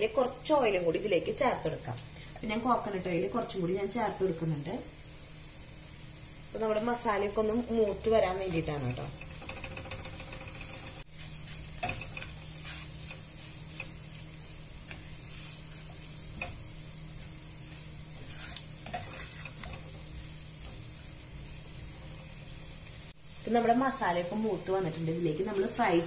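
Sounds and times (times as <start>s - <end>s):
masala sizzling in a pot: 0.0s - 26.0s
spatula scraping a pot: 8.5s - 14.0s, 17.6s - 20.9s.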